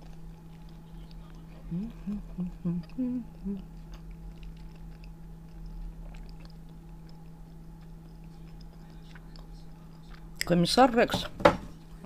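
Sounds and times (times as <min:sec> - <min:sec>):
quiet chewing: 0:00.0 - 0:10.6
low hum: 0:00.0 - 0:11.0
wet mouth clicks: 0:01.7 - 0:09.5.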